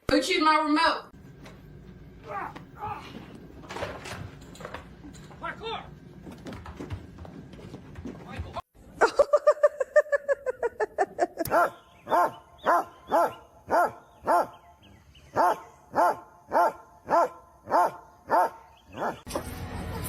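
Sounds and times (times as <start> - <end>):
dog barking: 11.5 - 14.6, 15.3 - 19.3.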